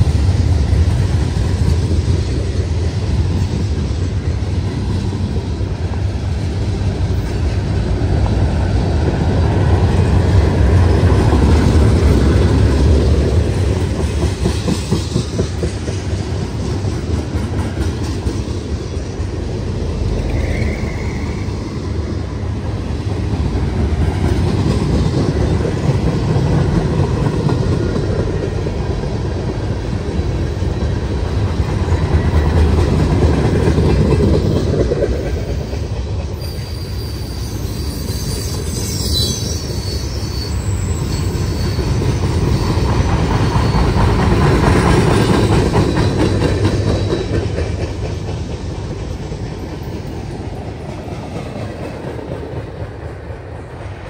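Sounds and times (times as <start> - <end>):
clickety-clack over rail joints: 0.0 - 54.0
train wheels rumbling on rail: 0.0 - 54.0
high wheel squeal: 20.2 - 22.1, 35.8 - 44.4.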